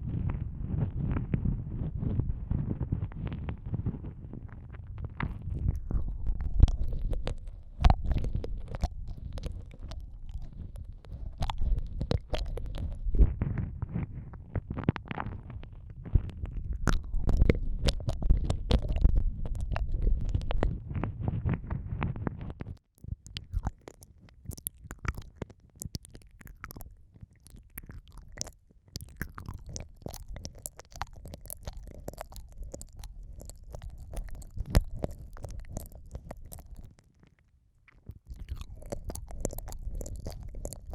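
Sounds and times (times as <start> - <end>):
wet mouth clicks and smacks: 5.2 - 13.4, 15.0 - 20.8, 22.6 - 40.9.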